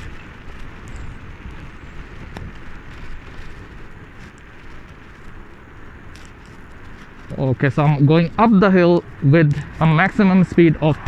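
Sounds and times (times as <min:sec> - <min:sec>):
road rumble from bike: 0:00.0 - 0:11.0
wind buffeting microphone: 0:00.0 - 0:11.0.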